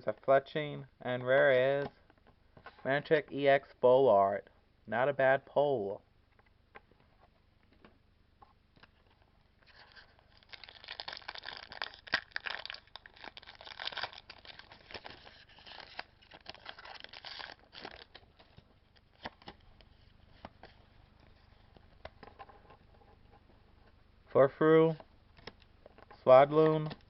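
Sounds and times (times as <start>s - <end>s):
foil pack tearing and crinkling: 9.8s - 18.2s.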